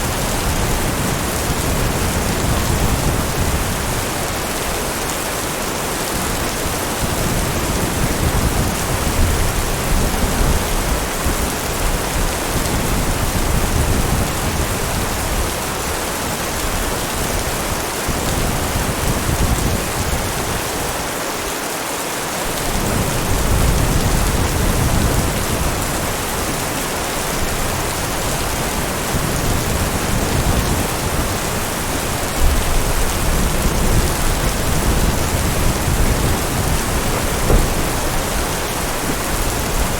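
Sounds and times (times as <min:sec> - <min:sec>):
heavy rain falling: 0:00.0 - 0:39.9
thunder rumbling: 0:27.4 - 0:39.9.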